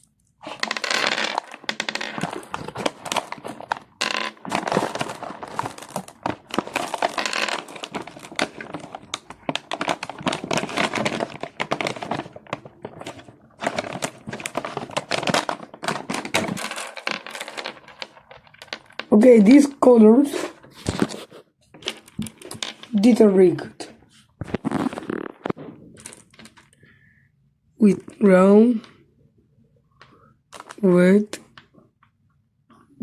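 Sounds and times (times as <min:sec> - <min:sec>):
plastic packaging crinkling: 0:00.0 - 0:19.1, 0:24.4 - 0:26.7, 0:30.5 - 0:30.8.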